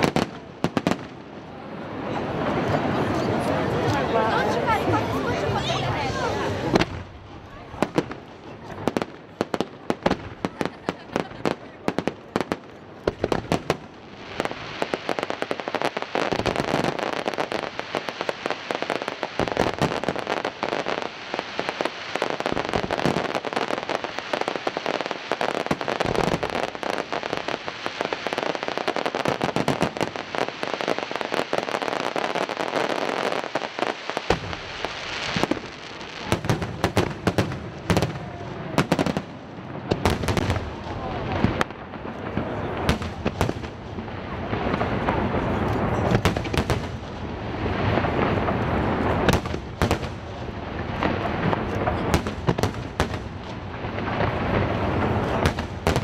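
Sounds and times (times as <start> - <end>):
firework crackling and popping: 0.0 - 56.0.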